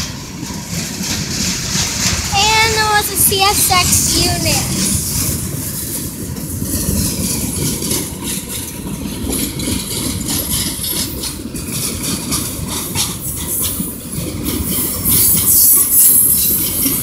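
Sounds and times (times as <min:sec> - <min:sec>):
train wheels rumbling on rails: 0:00.0 - 0:17.0
clicks of wheels: 0:05.9 - 0:17.0.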